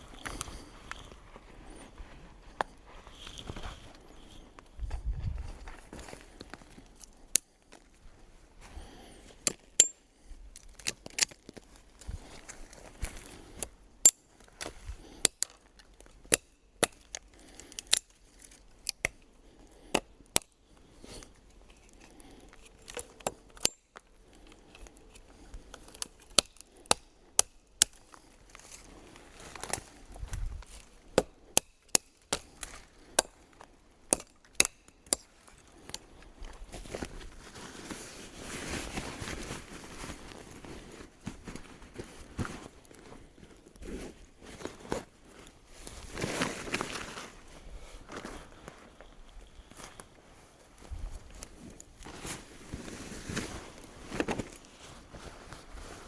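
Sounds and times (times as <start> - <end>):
rustling noise: 0.0 - 7.1, 7.8 - 13.7, 35.8 - 56.0.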